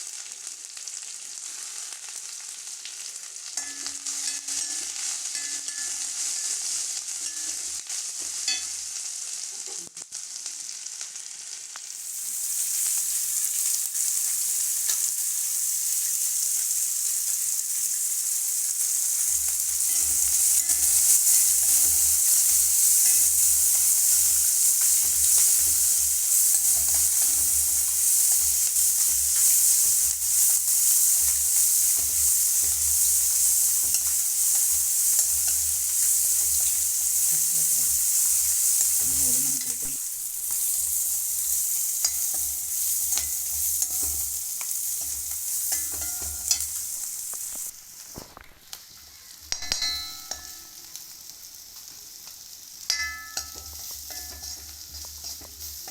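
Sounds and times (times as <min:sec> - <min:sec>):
food sizzling in hot oil: 0:00.0 - 0:55.9.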